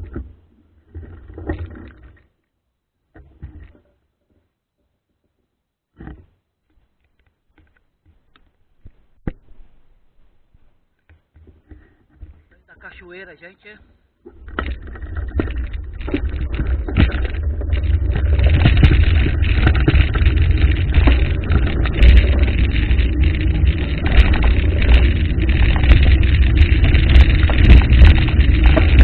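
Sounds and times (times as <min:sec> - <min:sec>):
small clicks: 0:14.2 - 0:29.0.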